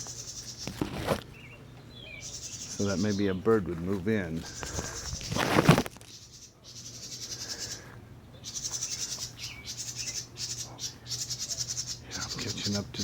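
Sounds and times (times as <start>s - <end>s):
loud rustle: 0.6s - 1.3s, 4.5s - 6.1s.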